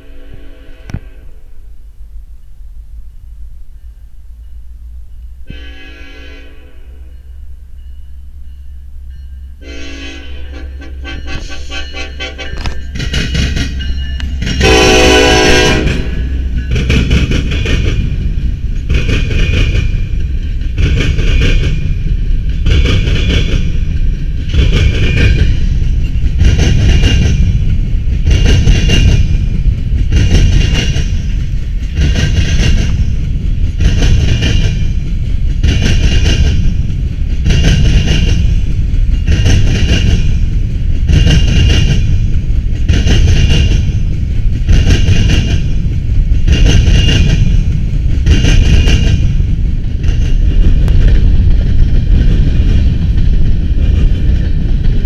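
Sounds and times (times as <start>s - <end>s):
freight train rumbling: 0.0s - 55.0s
rhythmic wheel clatter: 11.3s - 15.0s, 15.8s - 55.0s.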